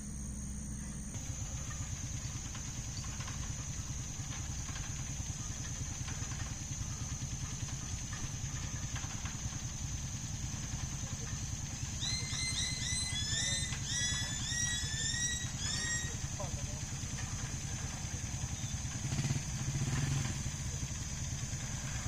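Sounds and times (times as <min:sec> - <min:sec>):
high insect trill: 0:00.0 - 0:22.0
vehicle engine idling: 0:00.0 - 0:22.0
bird chirping: 0:11.8 - 0:16.7, 0:18.4 - 0:18.8.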